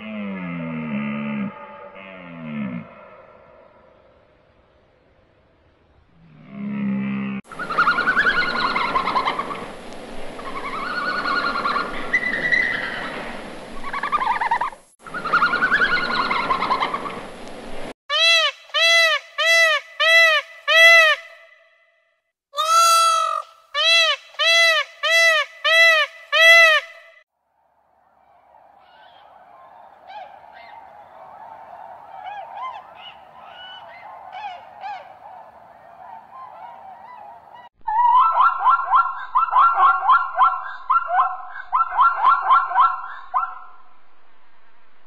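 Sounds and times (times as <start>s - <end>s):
hissy background noise: 7.5s - 17.9s
loud honking bird calls: 18.1s - 21.6s, 22.6s - 27.2s.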